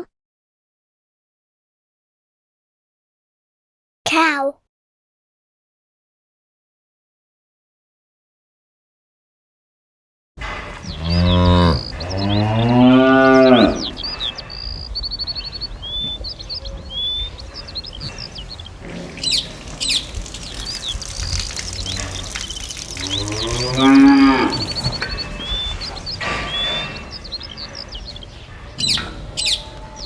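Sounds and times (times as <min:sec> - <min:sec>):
cow mooing: 0:10.4 - 0:30.0.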